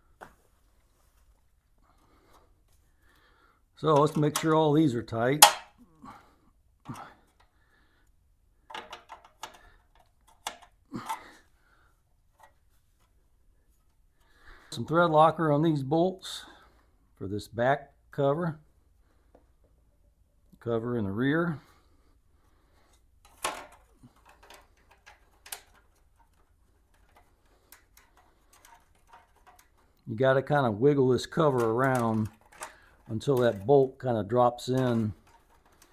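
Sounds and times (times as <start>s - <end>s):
hand tools clicking on metal: 3.8s - 4.6s, 5.4s - 5.7s, 23.3s - 30.1s, 31.2s - 34.0s, 34.6s - 35.9s.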